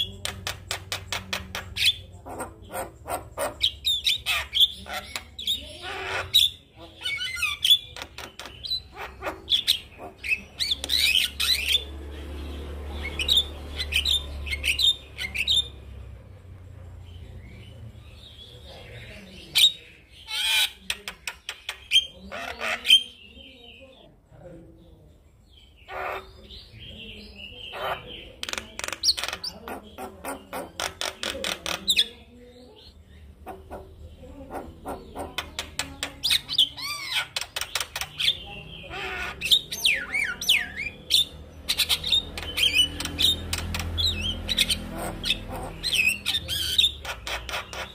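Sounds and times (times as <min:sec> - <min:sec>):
bird clicking and chattering: 0:00.0 - 0:11.9, 0:20.2 - 0:23.1, 0:27.8 - 0:47.9.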